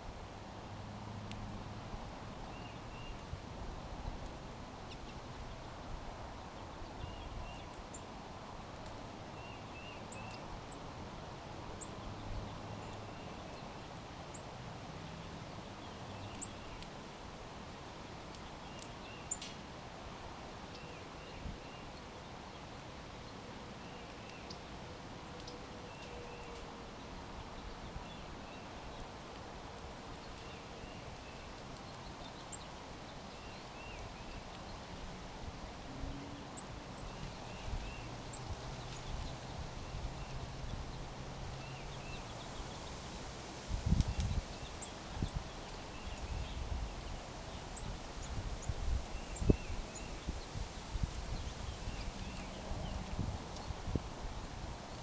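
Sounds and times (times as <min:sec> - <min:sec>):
small birds chirping: 0:00.0 - 0:03.2, 0:36.6 - 0:43.0
outdoor background noise: 0:00.0 - 0:55.0.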